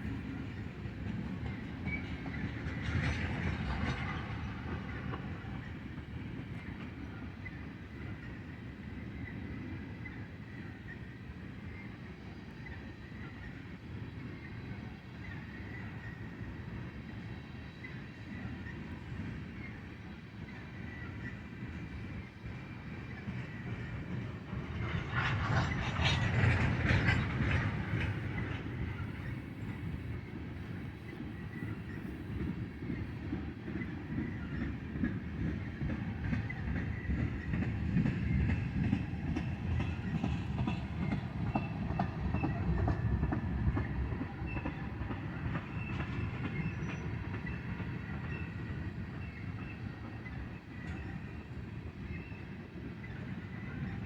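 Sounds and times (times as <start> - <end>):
train rumble: 0.0 - 54.0
train wheels clacking over rail joints: 1.0 - 6.1, 23.2 - 49.7.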